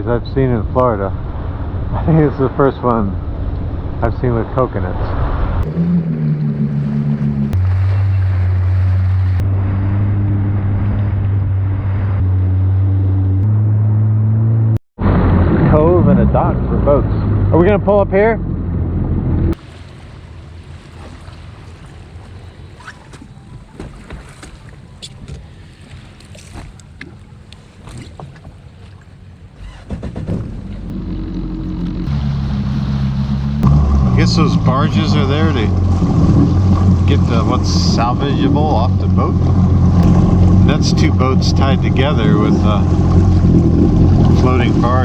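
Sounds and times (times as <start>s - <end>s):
water splashing against hull: 0.0s - 13.6s, 19.5s - 45.0s
jet ski engine running: 0.0s - 14.0s, 15.1s - 45.0s
wind: 0.0s - 45.0s
jet ski engine idling: 29.3s - 45.0s.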